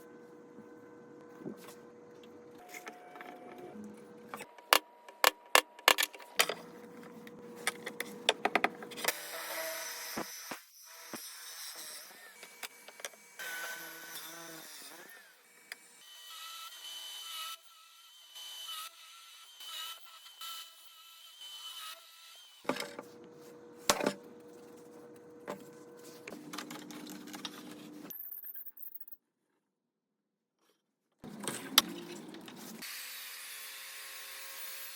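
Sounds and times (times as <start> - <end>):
small power tool whirring: 6.7 - 28.1, 31.8 - 34.9.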